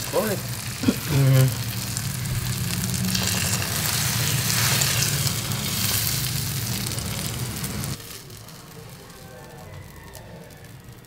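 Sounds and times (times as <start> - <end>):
food sizzling in hot oil: 0.0 - 11.0
low hum: 0.5 - 8.0.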